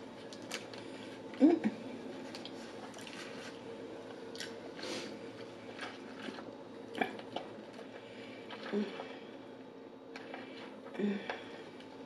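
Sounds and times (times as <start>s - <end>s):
person chewing: 2.3s - 3.6s, 4.3s - 9.2s.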